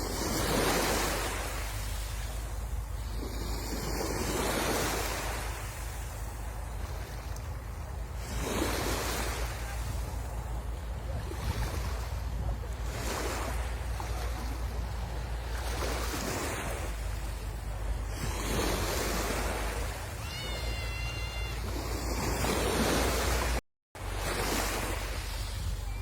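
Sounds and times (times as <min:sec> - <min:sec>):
wind rumble on microphone: 0:00.0 - 0:20.2, 0:21.4 - 0:26.0
sea waves washing onto shore: 0:00.0 - 0:26.0.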